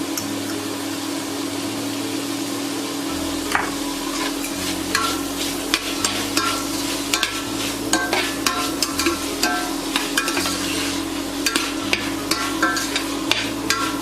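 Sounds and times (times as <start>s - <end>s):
food sizzling in a pan: 0.0s - 14.0s
spoon scraping and clicking on pan: 4.4s - 10.8s, 11.4s - 14.0s.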